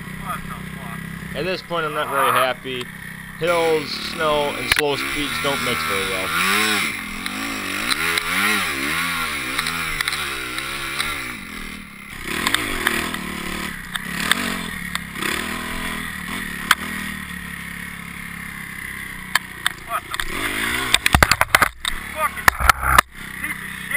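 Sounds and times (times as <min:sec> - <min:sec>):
dirt bike engine revving: 0:00.0 - 0:23.9
knocks and clatter: 0:20.9 - 0:21.9.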